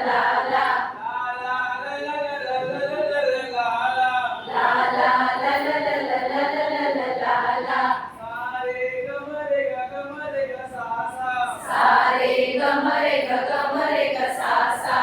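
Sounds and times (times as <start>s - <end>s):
voices singing unaccompanied: 0.0s - 3.6s, 4.3s - 8.6s, 11.2s - 15.0s.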